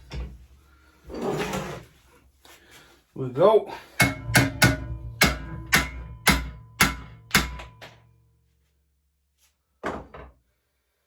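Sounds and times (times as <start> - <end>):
hammer striking steel: 4.0 - 8.1.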